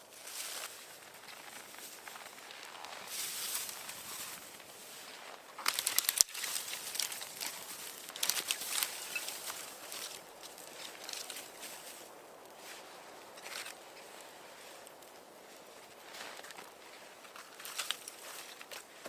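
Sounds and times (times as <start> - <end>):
crunching and rustling: 0.1 - 19.0
rapid sharp crackles: 5.6 - 11.4.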